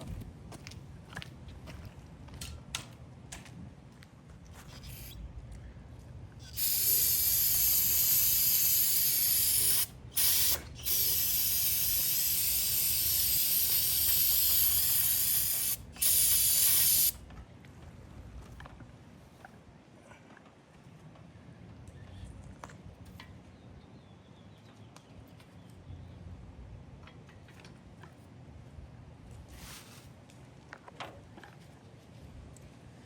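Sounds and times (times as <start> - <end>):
aerosol can spraying: 6.4 - 17.2.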